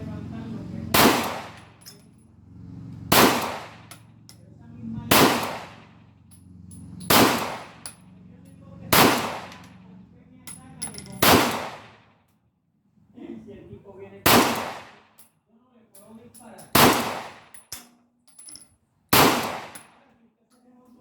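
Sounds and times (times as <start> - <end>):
pistol shots: 0.9 - 1.8, 3.1 - 4.0, 5.1 - 6.0, 7.1 - 8.0, 8.9 - 9.8, 11.2 - 12.0, 14.3 - 15.2, 16.7 - 17.6, 19.1 - 20.0.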